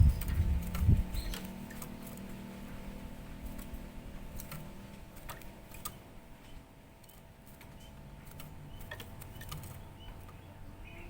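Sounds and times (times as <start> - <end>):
low steady hum: 0.0 - 11.0
faint scattered clicks: 4.4 - 10.5.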